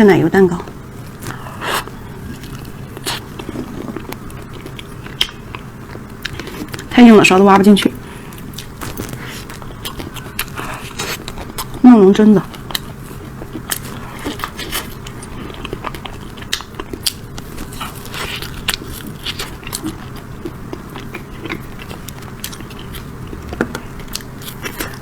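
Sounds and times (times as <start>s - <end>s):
crunching and chewing: 1.0s - 6.9s, 7.7s - 25.0s.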